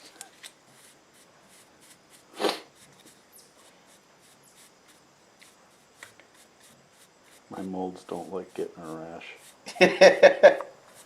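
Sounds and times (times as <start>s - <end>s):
soft brush scratching: 0.0s - 11.0s
breathy puff: 2.3s - 2.7s.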